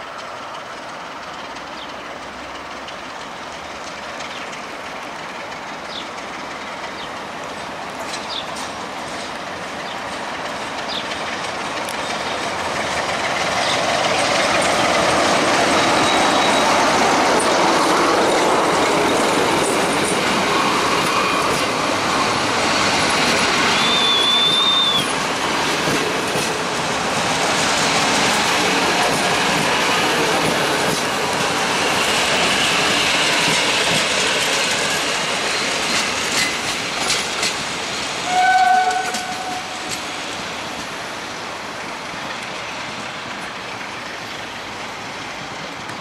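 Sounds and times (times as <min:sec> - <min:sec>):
train passing on rails: 0:00.0 - 0:46.0
high wheel squeal: 0:15.6 - 0:16.9, 0:23.5 - 0:25.2.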